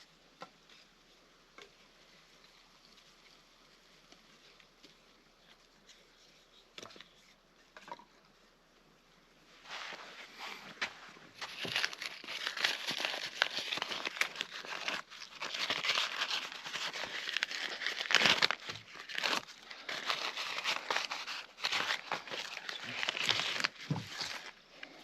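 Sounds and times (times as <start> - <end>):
crinkly material crumpled and torn: 9.6 - 25.0.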